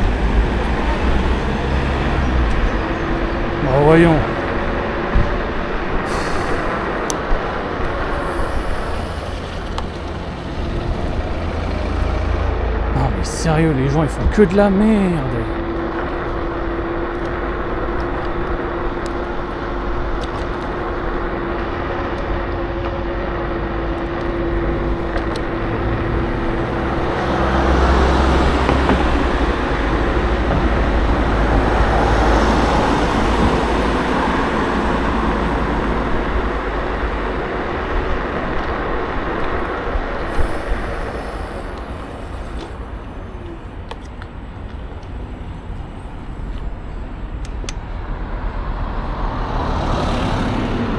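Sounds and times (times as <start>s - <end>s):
scooter hum: 0.0s - 13.3s
traffic noise: 0.0s - 50.9s.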